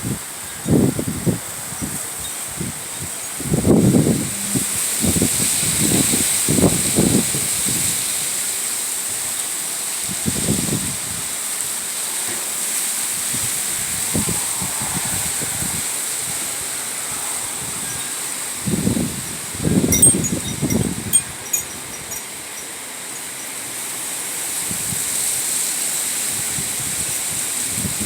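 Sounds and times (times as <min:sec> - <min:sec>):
wind buffeting microphone: 0:00.0 - 0:08.3, 0:10.1 - 0:11.4, 0:13.0 - 0:22.6, 0:26.3 - 0:28.0
strong gusty wind: 0:00.0 - 0:09.3, 0:10.0 - 0:22.7, 0:24.5 - 0:25.5, 0:26.2 - 0:28.0.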